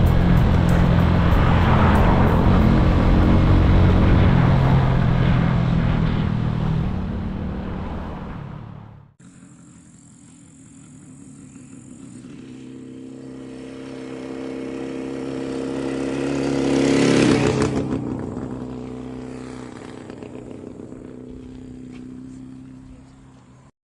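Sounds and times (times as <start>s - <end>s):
vehicle passing close by: 0.0s - 9.1s
steady engine hum: 0.0s - 23.7s.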